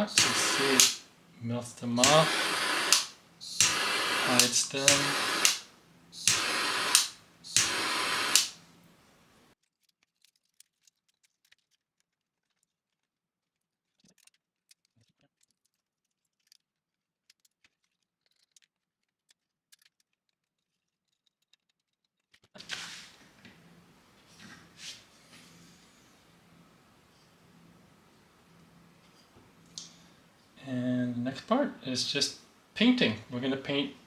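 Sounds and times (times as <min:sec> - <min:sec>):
faint handling clicks: 0:00.0 - 0:09.4, 0:22.6 - 0:34.0
torch burner hissing: 0:00.0 - 0:09.4, 0:22.6 - 0:34.0.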